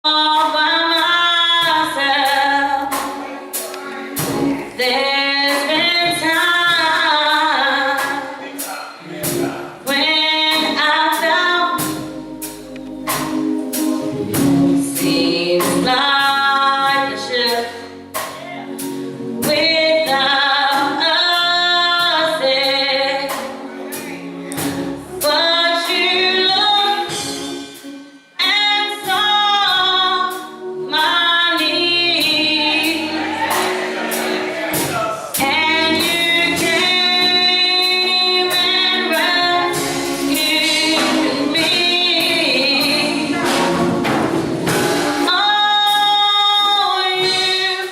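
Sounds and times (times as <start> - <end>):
instrumental accompaniment: 0.1 - 47.9
gospel choir singing: 0.4 - 47.9.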